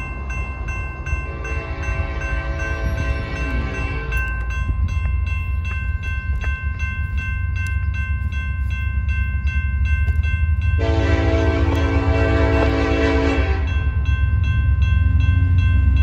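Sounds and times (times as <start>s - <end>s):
bell ringing: 0.0s - 16.0s
train rumbling past: 0.0s - 16.0s
train air horn blast: 1.4s - 4.1s, 10.8s - 13.8s.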